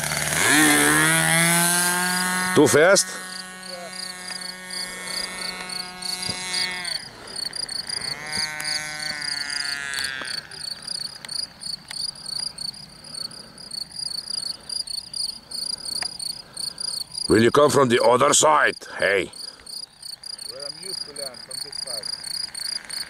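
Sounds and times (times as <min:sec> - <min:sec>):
model plane engine flying overhead: 0:00.0 - 0:12.5, 0:20.4 - 0:23.0
crickets chirping: 0:02.8 - 0:23.0.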